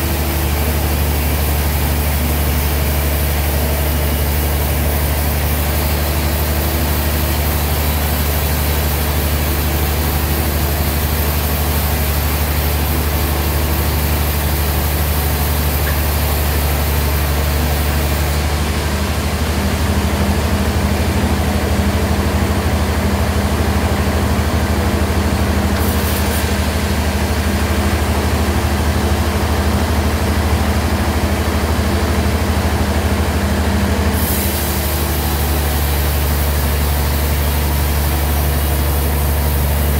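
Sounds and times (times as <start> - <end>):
bandsaw machinery humming: 0.0 - 31.2.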